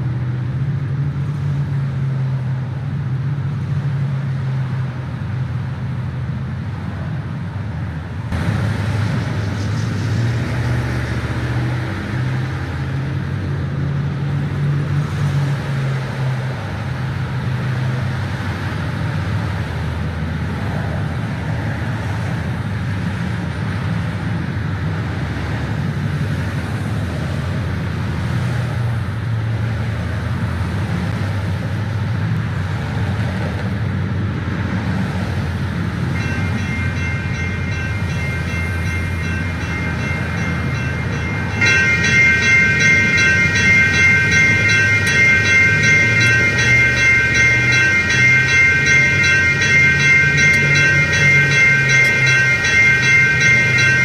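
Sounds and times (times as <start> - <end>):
train rumble: 0.0 - 54.0
rapid high ringing: 35.8 - 54.0.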